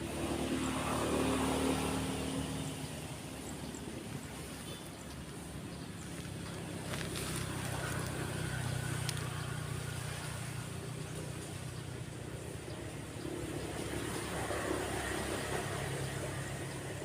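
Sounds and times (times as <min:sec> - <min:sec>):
motorbike and car traffic passing: 0:00.0 - 0:17.0.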